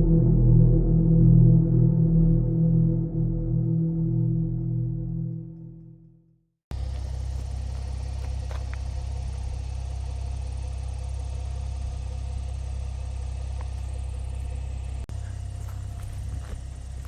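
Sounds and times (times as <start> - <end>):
steady low rumble: 6.7 - 17.0.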